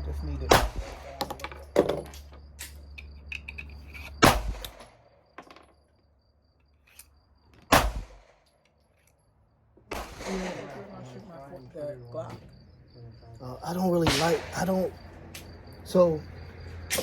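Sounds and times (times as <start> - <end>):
pistol shots with echo: 0.5 - 1.2, 4.2 - 4.8, 7.7 - 8.4, 9.9 - 11.0, 14.0 - 14.9.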